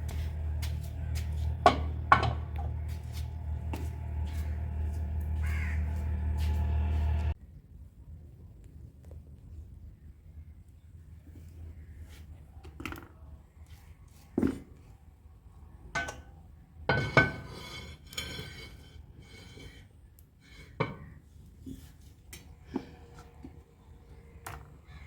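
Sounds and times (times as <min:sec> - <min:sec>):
metal pots and utensils clanking: 0:00.0 - 0:07.3, 0:16.9 - 0:19.8.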